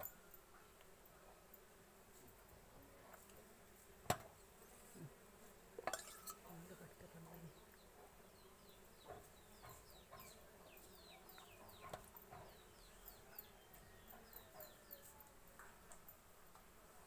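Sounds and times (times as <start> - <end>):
faint bird chirping: 6.0 - 16.2.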